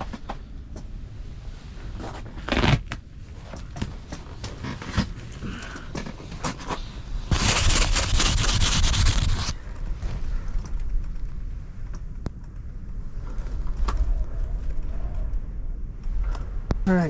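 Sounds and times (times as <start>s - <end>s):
wind rumbling against tent: 0.0s - 17.0s
rustling and scraping handling noise: 1.8s - 10.5s.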